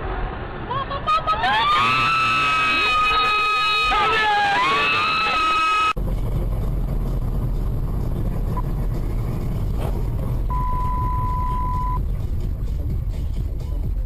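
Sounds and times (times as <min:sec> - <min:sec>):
car engine and road noise: 0:00.0 - 0:14.0
electronic beep: 0:10.5 - 0:12.0.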